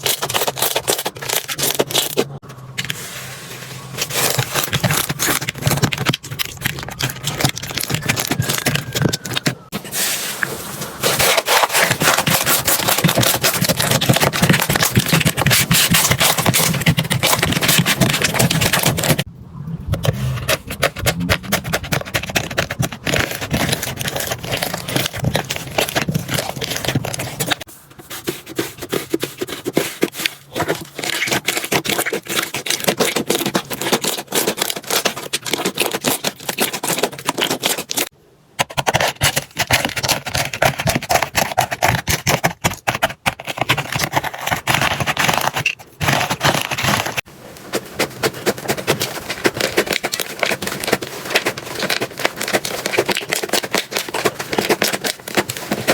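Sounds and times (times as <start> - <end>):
slime squelching and crackling: 3.8 - 9.8, 19.9 - 38.1, 39.0 - 55.9.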